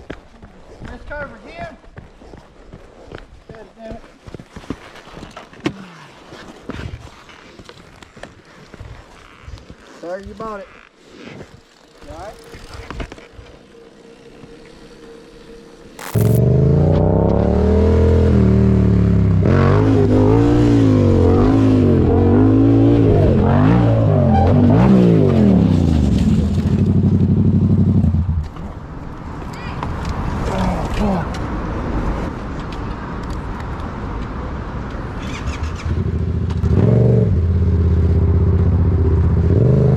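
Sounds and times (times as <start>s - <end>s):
rushing noise: 13.6s - 26.4s
motorcycle engine revving: 16.0s - 28.4s, 35.8s - 39.9s.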